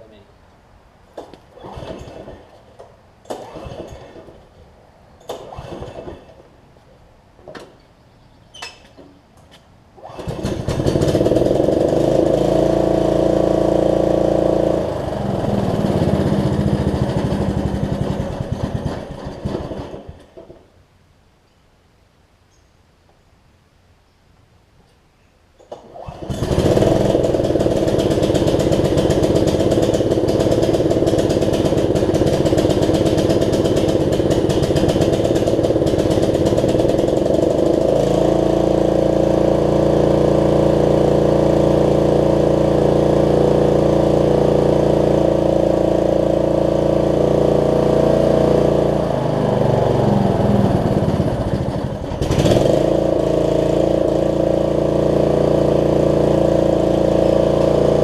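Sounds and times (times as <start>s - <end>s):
mower engine starting and running: 1.2s - 4.6s, 5.2s - 6.5s, 10.0s - 20.7s, 25.6s - 58.0s
engine revving: 3.4s - 4.2s, 10.0s - 20.1s, 25.9s - 58.0s.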